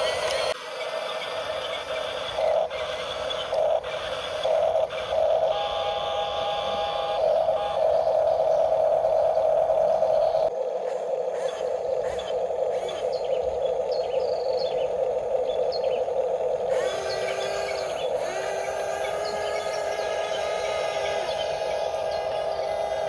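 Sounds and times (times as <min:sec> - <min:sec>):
small electric motor whining: 0:00.0 - 0:10.5, 0:16.1 - 0:23.0.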